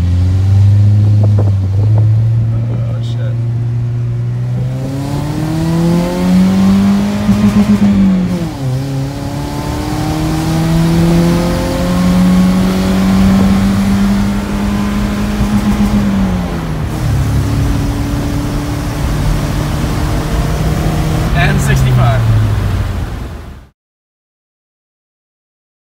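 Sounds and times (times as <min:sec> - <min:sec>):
car engine accelerating: 0:00.0 - 0:23.7.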